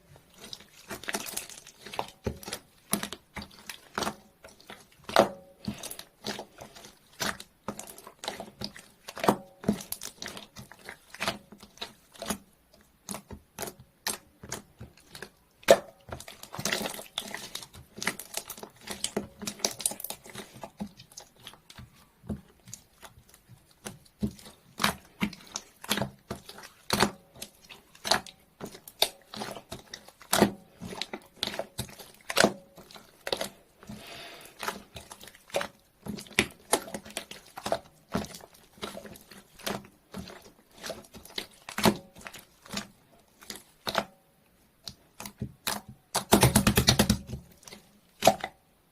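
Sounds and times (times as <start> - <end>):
slime clicking and popping: 44.8 - 48.6.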